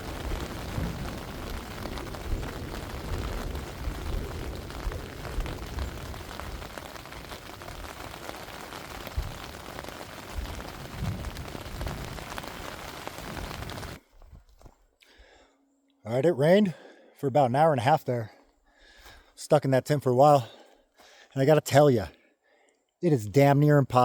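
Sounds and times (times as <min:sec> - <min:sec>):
rain pattering on a tent: 0:00.0 - 0:14.8.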